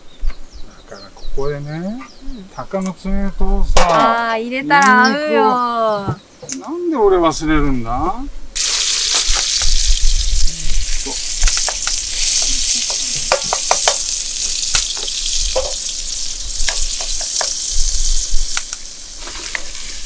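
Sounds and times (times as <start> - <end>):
meat sizzling in a wok: 8.6 - 20.0.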